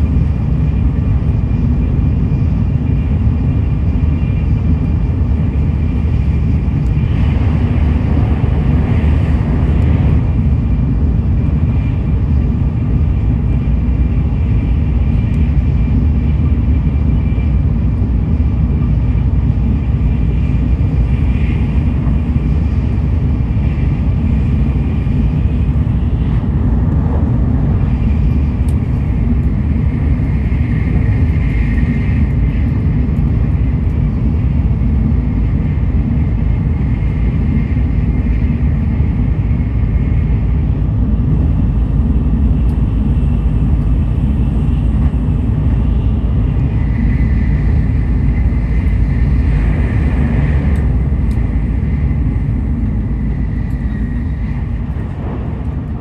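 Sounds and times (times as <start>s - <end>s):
faint high whine: 0.0s - 56.0s
train wheels rumbling: 0.0s - 56.0s.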